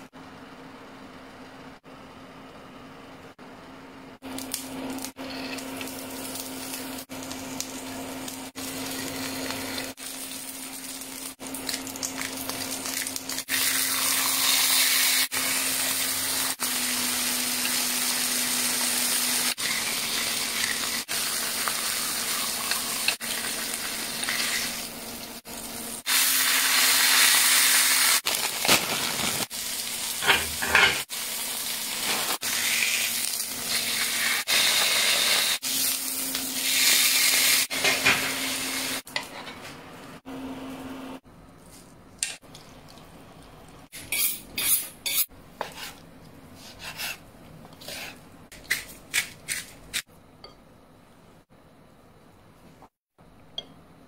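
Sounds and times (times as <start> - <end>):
food sizzling in a pan: 4.4 - 39.2.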